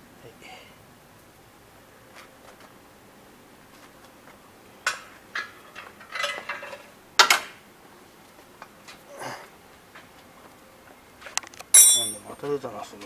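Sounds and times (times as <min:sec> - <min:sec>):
metal tools clinking: 0:05.4 - 0:06.8, 0:11.7 - 0:12.4.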